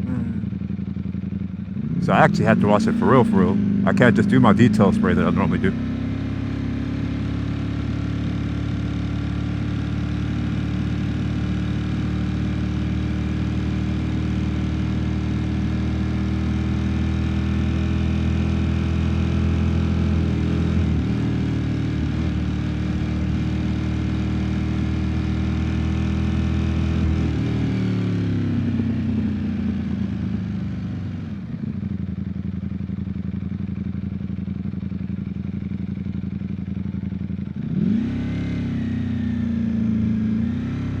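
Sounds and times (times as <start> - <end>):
motorcycle engine running: 0.0 - 2.0, 27.4 - 41.0.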